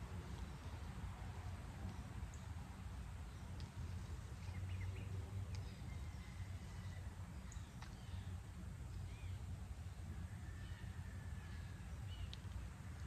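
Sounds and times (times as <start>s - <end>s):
faint clicks: 5.4s - 5.8s, 12.2s - 13.0s.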